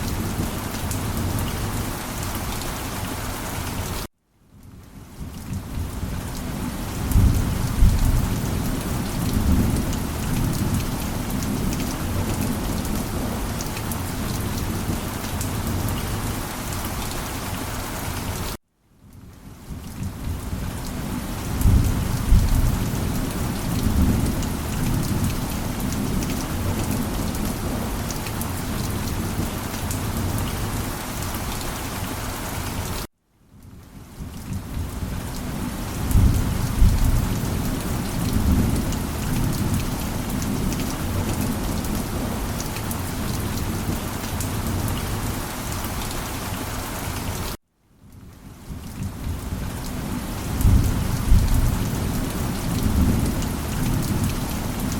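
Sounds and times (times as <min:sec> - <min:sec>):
steady rain: 0:00.0 - 0:54.9
low rolling thunder: 0:05.5 - 0:13.6, 0:21.4 - 0:28.0, 0:35.9 - 0:42.6, 0:50.4 - 0:54.9.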